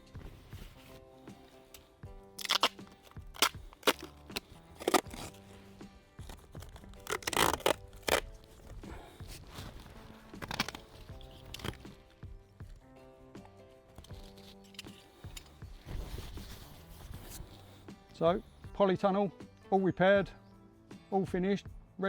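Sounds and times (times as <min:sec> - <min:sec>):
background music: 0:00.0 - 0:22.0
plastic sheeting and tape crackling: 0:02.4 - 0:12.2.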